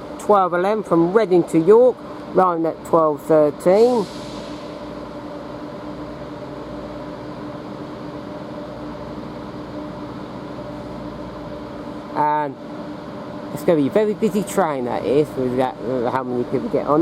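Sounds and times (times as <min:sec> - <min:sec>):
diesel train engines idling: 0:00.0 - 0:17.0.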